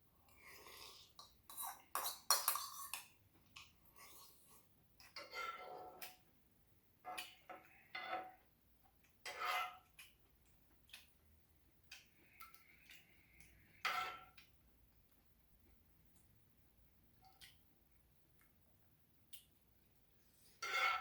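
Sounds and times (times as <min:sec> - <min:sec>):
utensils clinking against bowl: 0:01.5 - 0:03.1.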